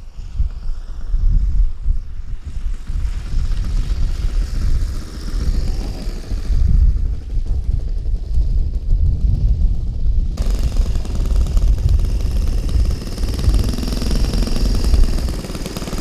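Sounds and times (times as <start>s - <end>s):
wind rumble on microphone: 0.0s - 16.0s
model plane engine running: 2.4s - 9.0s, 9.9s - 16.0s.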